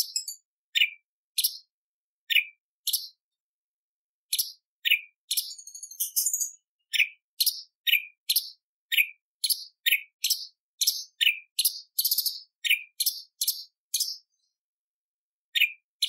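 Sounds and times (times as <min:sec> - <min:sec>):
bird singing sharp high chips: 0:00.0 - 0:01.7, 0:04.3 - 0:14.2.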